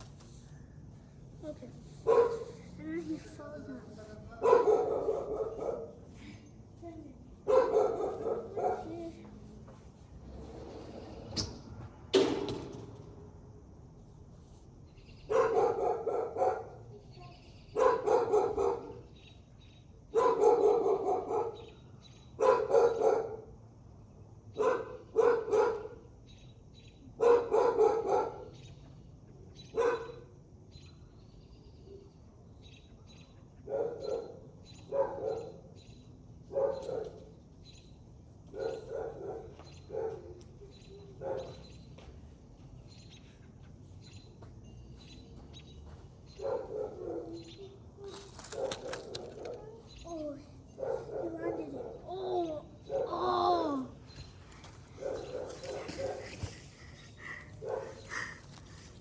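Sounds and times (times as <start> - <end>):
dog barking: 2.0 - 2.7, 4.4 - 6.1, 7.4 - 9.1, 15.3 - 16.9, 17.8 - 19.2, 20.1 - 21.8, 22.4 - 23.6, 24.5 - 26.1, 27.2 - 28.6, 29.7 - 30.3, 33.6 - 35.8, 36.5 - 37.3, 38.5 - 41.8, 46.3 - 54.2, 55.0 - 56.6, 57.2 - 58.7.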